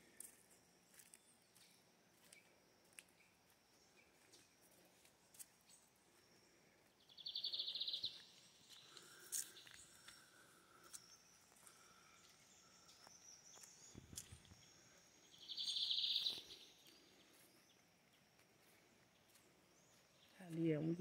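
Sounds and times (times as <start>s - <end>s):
bird high rapid trill: 15.4s - 16.6s.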